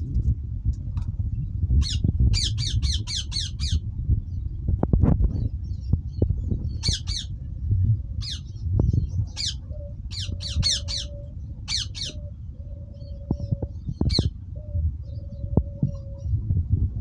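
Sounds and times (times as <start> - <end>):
low rumble: 0.0 - 17.0
parakeets squawking: 1.8 - 3.8, 6.8 - 7.3, 8.2 - 8.6, 9.3 - 12.2, 14.0 - 14.3.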